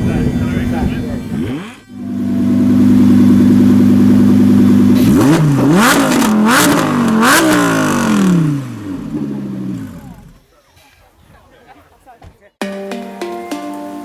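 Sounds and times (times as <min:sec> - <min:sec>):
supercar engine revving: 0:00.0 - 0:10.4
exhaust pops and crackles: 0:02.6 - 0:10.4.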